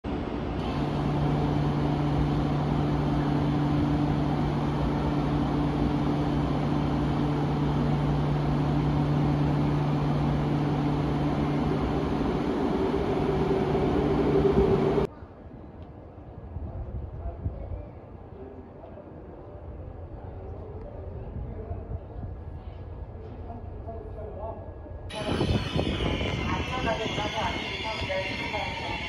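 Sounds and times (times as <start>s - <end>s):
electric train rumbling: 0.1s - 15.1s, 25.0s - 29.0s
higher hum: 0.3s - 15.1s, 25.1s - 29.0s.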